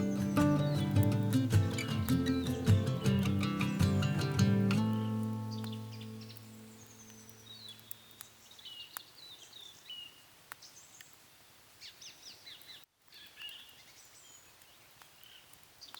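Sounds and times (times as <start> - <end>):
guitar chord: 0.0 - 5.6
small birds chirping and singing: 0.0 - 11.2, 11.8 - 15.9.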